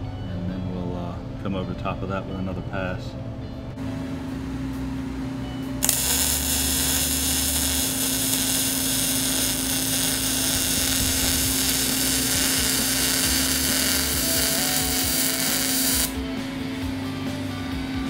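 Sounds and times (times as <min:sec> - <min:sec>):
welding arc hissing: 0:05.8 - 0:16.2.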